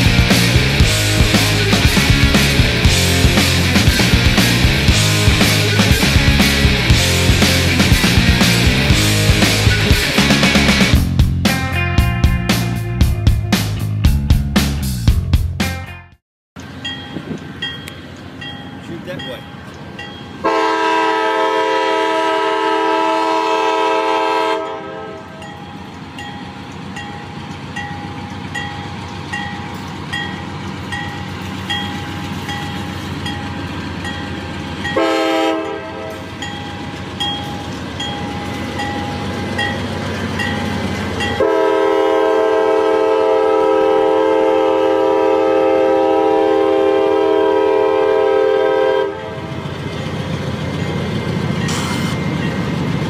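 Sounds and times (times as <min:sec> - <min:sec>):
train rumbling by: 0:00.0 - 0:15.3, 0:16.6 - 0:53.0
locomotive air horn blasts: 0:20.4 - 0:25.4, 0:34.9 - 0:36.3, 0:41.4 - 0:49.5.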